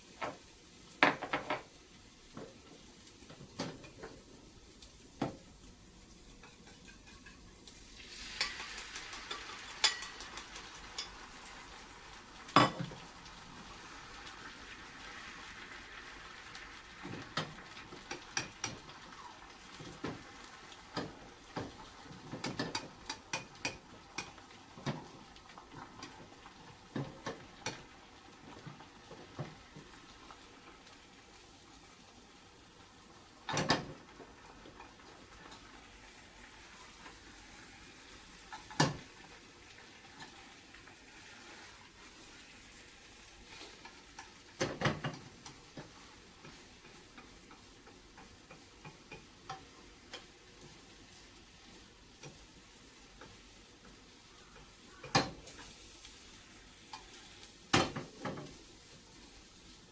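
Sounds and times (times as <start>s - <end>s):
food sizzling: 0.0s - 59.9s
utensils knocking dishes and pan: 0.2s - 0.4s, 1.0s - 1.7s, 8.4s - 11.2s, 12.5s - 13.0s, 17.0s - 19.0s, 20.9s - 25.2s, 33.5s - 34.3s, 38.5s - 39.1s, 43.6s - 50.3s, 55.0s - 55.7s, 57.7s - 58.6s.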